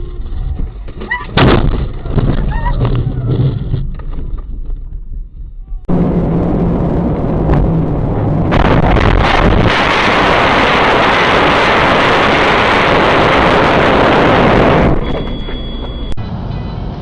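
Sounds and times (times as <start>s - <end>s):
vehicle road noise: 0.0s - 17.0s
rushing wind: 5.2s - 17.0s.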